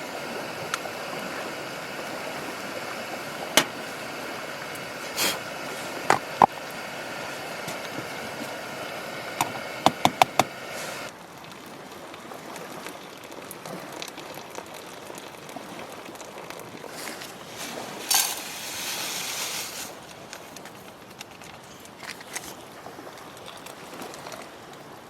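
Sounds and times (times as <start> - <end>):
brief hiss: 5.0 - 6.0, 16.9 - 20.0
handling noises: 16.9 - 22.6.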